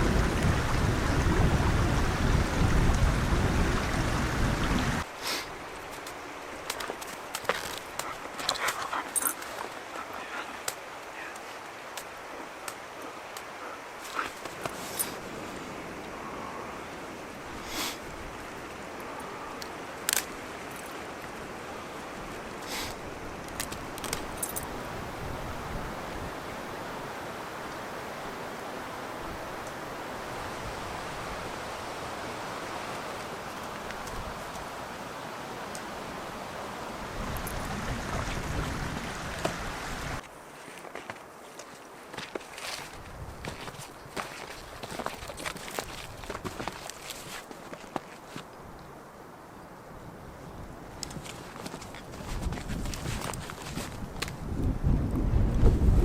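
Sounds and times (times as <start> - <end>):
blizzard wind gusting: 0.0 - 6.7, 13.8 - 40.2, 48.8 - 56.0
handling clicks and rustles: 5.7 - 15.2, 22.8 - 24.7, 40.2 - 48.6, 51.0 - 54.4.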